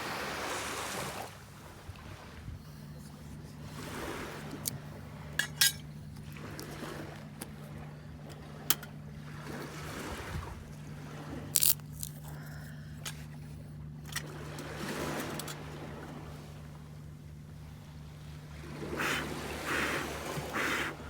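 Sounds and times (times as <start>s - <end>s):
small waves on sandy shore: 0.0s - 13.4s, 14.1s - 21.0s
low boat engine hum: 0.0s - 21.0s
metal cookware clinks: 5.4s - 5.8s.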